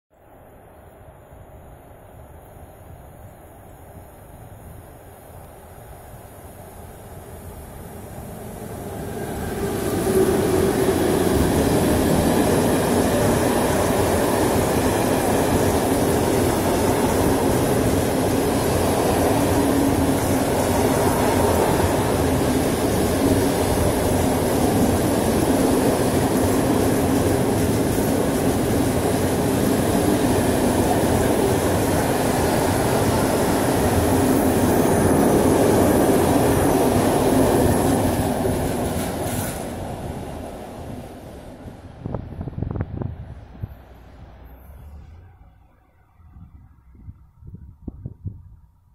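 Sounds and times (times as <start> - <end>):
train wheels rumbling on rail: 4.3 - 45.1
thin high whine: 43.4 - 48.5.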